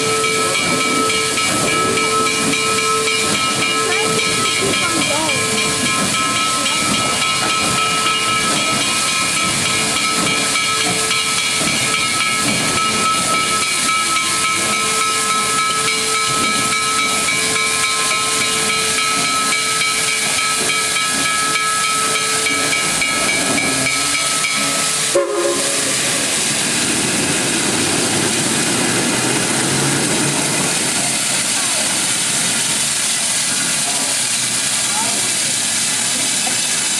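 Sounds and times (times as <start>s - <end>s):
ringing tones: 0.0s - 26.0s
steam locomotive venting steam: 0.0s - 36.9s.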